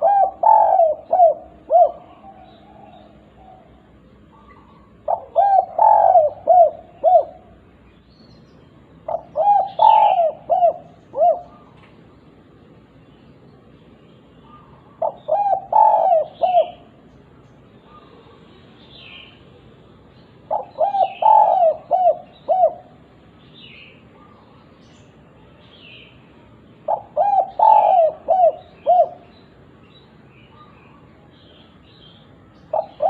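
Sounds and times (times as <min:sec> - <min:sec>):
dove cooing: 0:00.0 - 0:07.6, 0:09.0 - 0:12.0, 0:14.4 - 0:17.0, 0:20.5 - 0:23.1, 0:26.8 - 0:29.3, 0:32.7 - 0:33.0.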